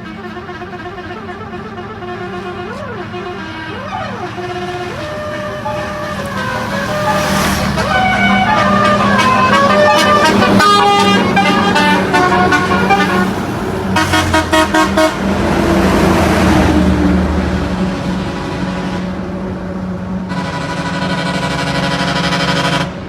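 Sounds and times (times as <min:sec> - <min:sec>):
short repeated honks: 0:00.0 - 0:13.4, 0:14.0 - 0:15.2
truck melody horn: 0:00.0 - 0:17.4, 0:20.2 - 0:23.0.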